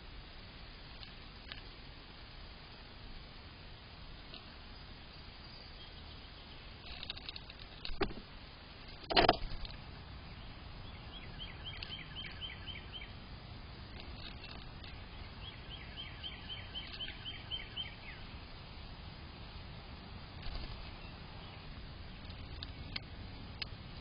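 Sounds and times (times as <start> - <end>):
songbird singing down-slurred notes: 4.7 - 6.9, 10.2 - 13.2, 13.8 - 18.4.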